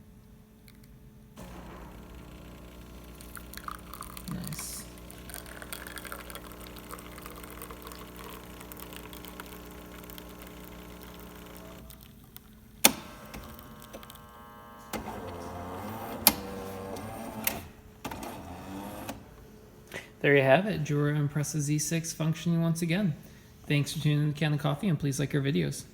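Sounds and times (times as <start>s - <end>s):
motor whirring: 1.4s - 11.9s
espresso machine pump humming: 1.4s - 19.6s.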